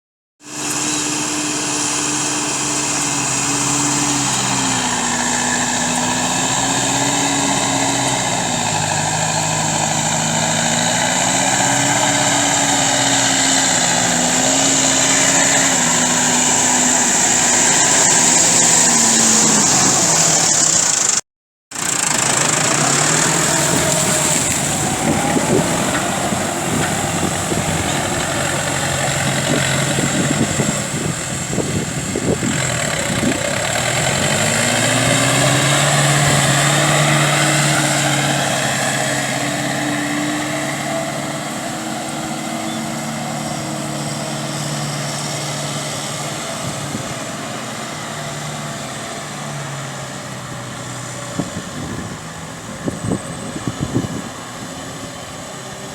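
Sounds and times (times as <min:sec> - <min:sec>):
churning through mud and water: 0:00.4 - 0:55.9
tractor diesel engine under load: 0:00.4 - 0:55.9.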